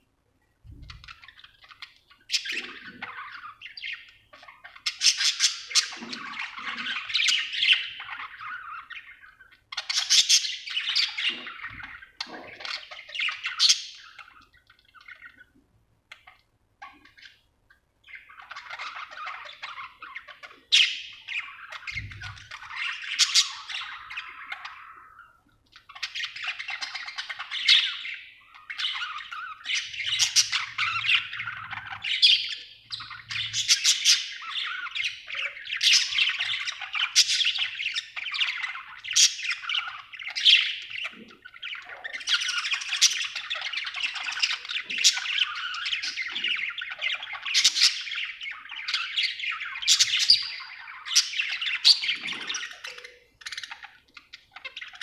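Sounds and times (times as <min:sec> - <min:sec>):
budgerigar chirping and warbling: 0:00.8 - 0:15.5, 0:18.0 - 0:55.0.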